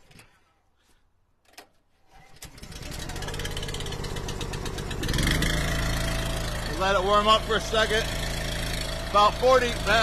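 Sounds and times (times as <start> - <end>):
gas engine starting and running: 2.0 - 10.0.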